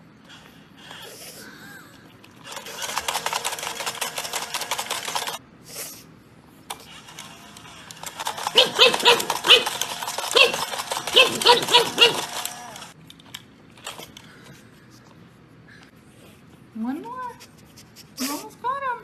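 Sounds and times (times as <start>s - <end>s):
toy motor whirring and clicking: 2.2s - 5.4s, 6.7s - 14.2s
high-pitched toy dog yips: 8.3s - 12.4s.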